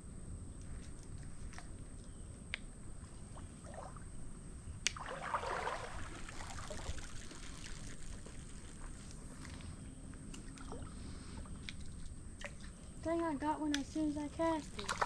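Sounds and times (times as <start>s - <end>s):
rumble of moving water: 0.0s - 15.0s
wind: 0.0s - 15.0s
creek water splashing: 4.9s - 9.6s, 10.4s - 15.0s.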